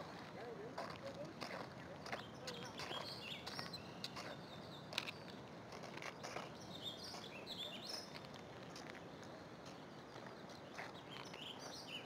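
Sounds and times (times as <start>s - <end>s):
small birds chirping: 2.0s - 5.4s, 9.7s - 12.0s.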